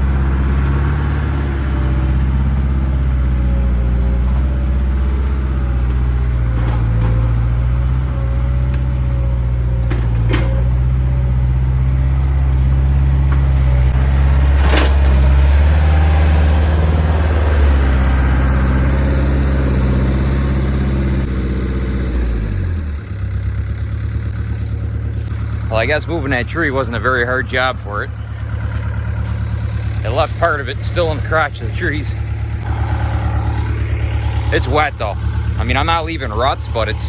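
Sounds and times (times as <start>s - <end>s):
sharp wood cracks: 0.0s - 25.8s
skid steer engine under load: 0.0s - 37.0s.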